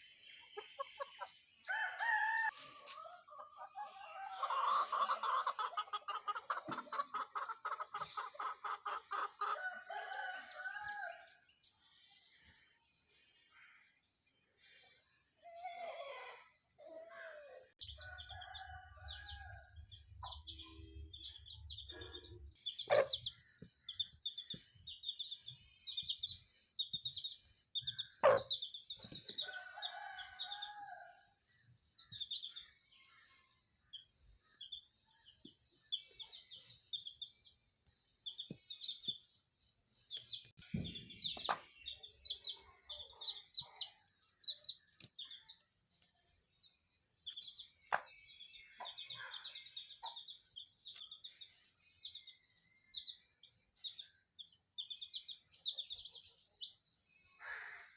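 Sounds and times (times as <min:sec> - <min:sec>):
chickens clucking: 0:00.0 - 0:01.9, 0:02.5 - 0:10.3, 0:20.2 - 0:25.1, 0:26.9 - 0:30.7, 0:40.4 - 0:44.0, 0:47.8 - 0:48.2
chicks peeping: 0:02.5 - 0:10.3, 0:17.8 - 0:30.8, 0:32.0 - 0:32.6, 0:33.9 - 0:46.0, 0:47.2 - 0:57.0.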